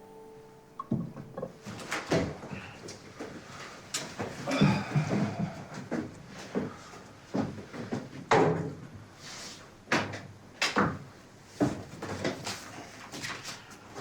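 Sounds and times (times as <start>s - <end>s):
sharp knocks and thumps: 0.8s - 2.8s.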